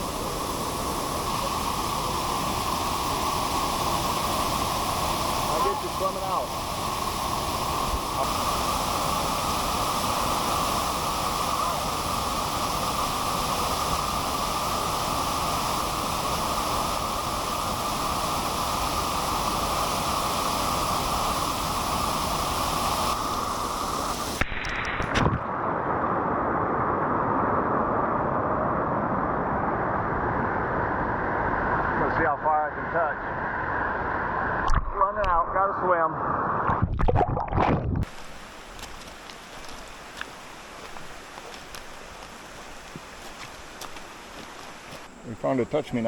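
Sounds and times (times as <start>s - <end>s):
waterfall rushing: 0.0s - 24.4s, 38.0s - 46.0s.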